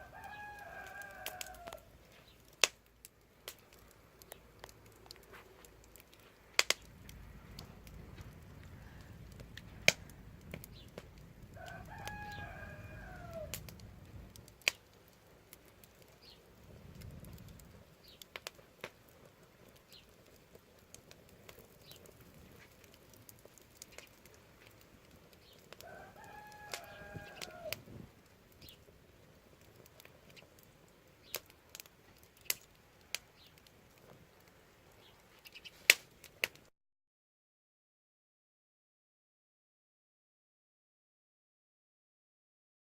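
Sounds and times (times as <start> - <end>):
rooster crowing: 0.0 - 1.9, 11.4 - 13.8, 25.8 - 27.9
wood fire crackling: 0.0 - 36.7.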